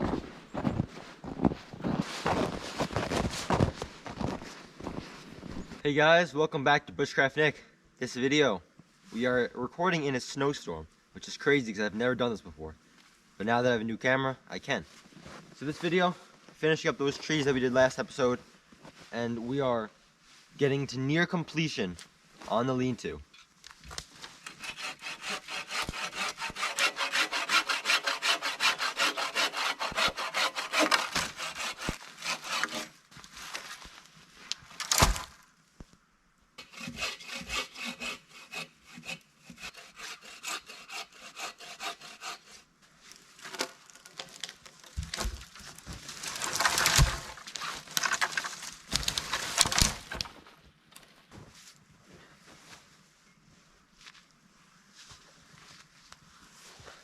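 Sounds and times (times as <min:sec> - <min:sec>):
hand saw cutting wood: 0:24.4 - 0:33.0, 0:36.6 - 0:42.7, 0:46.2 - 0:48.4.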